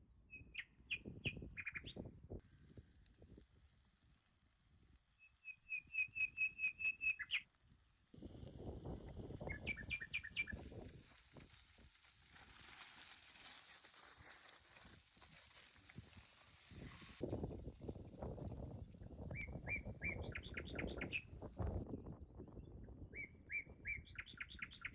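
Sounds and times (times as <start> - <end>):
bird calling: 9.5 - 10.6.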